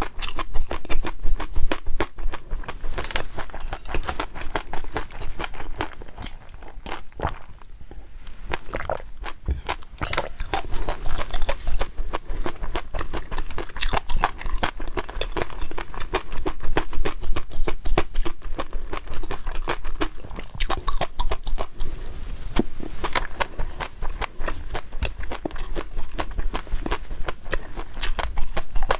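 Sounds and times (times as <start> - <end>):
person chewing food: 0.0 - 22.0, 22.6 - 28.9.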